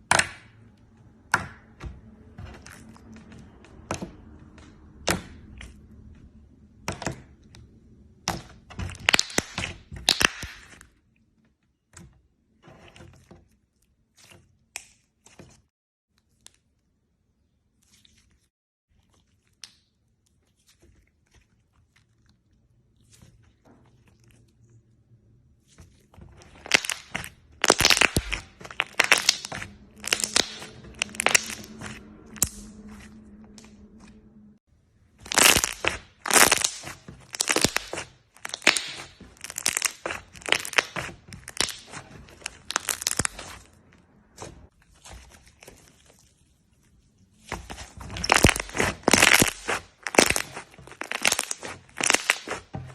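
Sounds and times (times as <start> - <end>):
slime crackling and popping: 8.2 - 10.9, 26.4 - 34.1, 35.2 - 43.8, 47.4 - 52.9.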